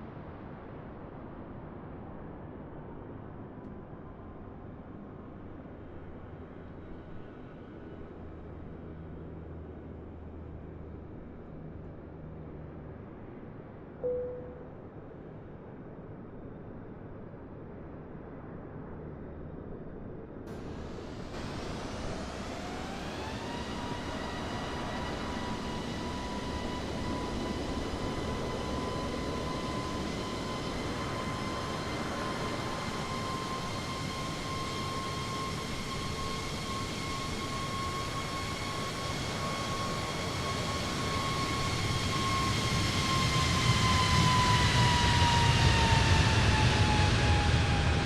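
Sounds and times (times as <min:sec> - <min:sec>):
jet engines spooling up: 0:20.5 - 0:48.0.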